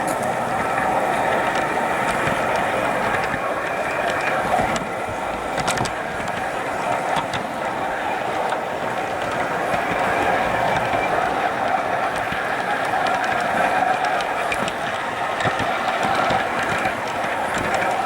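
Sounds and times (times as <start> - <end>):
model train motor whirring: 0.0 - 18.0
wheels clicking over track: 0.0 - 18.0.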